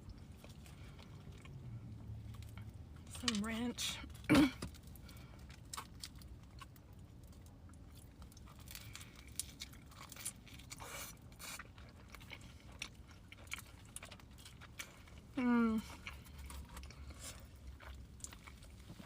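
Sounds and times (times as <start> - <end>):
chewing and biting pizza: 0.0 - 3.4, 4.1 - 19.0.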